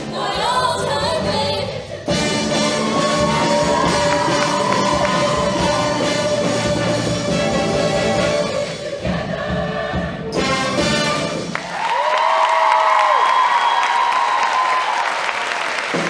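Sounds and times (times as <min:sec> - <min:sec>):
choir singing: 0:00.0 - 0:11.6.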